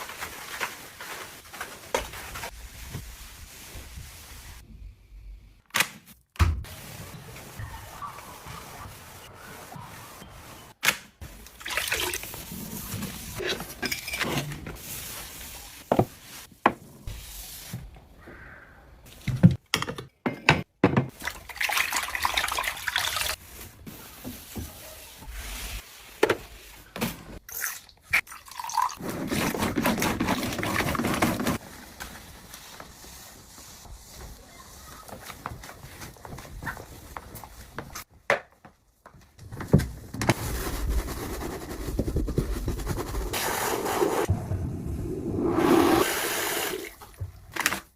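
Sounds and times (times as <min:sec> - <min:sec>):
water splashing and dripping: 0:11.5 - 0:12.5, 0:21.1 - 0:23.4.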